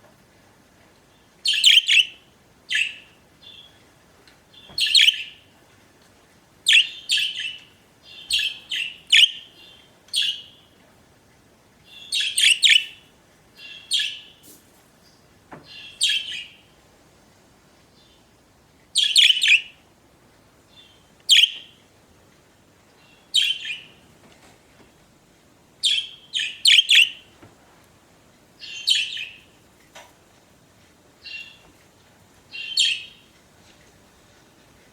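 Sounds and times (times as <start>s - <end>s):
budgerigars chirping and warbling: 1.5s - 3.6s, 4.7s - 5.3s, 6.7s - 9.5s, 11.9s - 13.0s, 25.8s - 27.2s.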